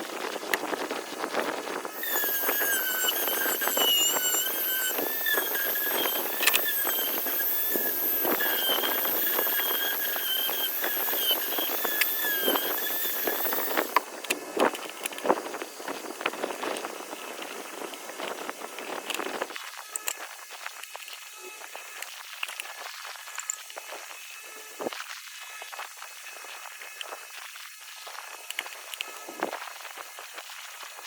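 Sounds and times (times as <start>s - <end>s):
power tool squealing: 1.9s - 14.2s.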